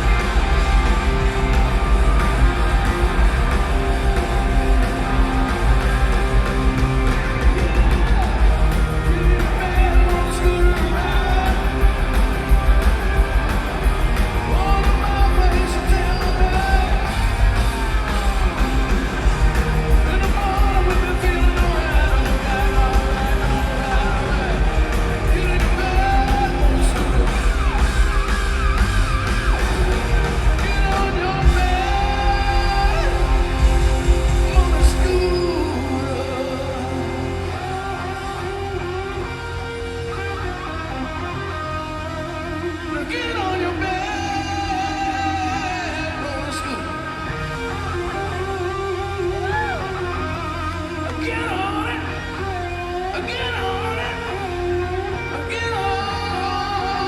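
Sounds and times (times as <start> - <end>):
live rock band playing: 0.0 - 57.0
person singing and yelling: 19.8 - 27.7, 30.4 - 39.4.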